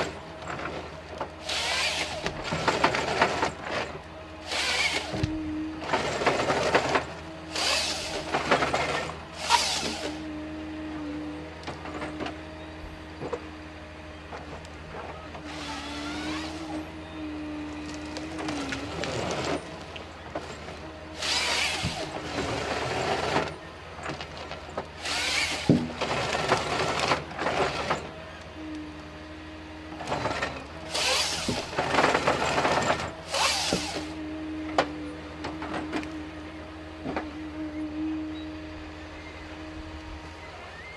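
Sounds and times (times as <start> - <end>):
engine hum: 0.0 - 40.9
wavering hydraulic whine: 0.0 - 40.9
harsh bursts of machine noise: 1.4 - 10.2, 15.4 - 16.8, 21.2 - 23.5, 25.0 - 28.0, 30.2 - 34.2.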